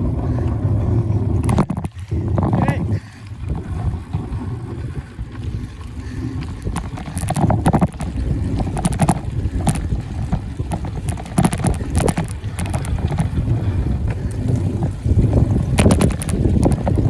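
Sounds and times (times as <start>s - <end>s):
low rumble: 0.0s - 17.0s
wind buffeting microphone: 0.0s - 17.0s
rattling clatters: 6.6s - 13.3s.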